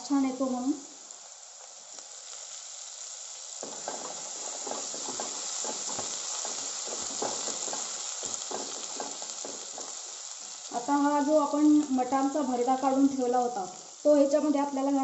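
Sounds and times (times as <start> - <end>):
paste sizzling in hot oil: 0.0 - 15.0
spatula scraping and stirring: 3.6 - 10.5.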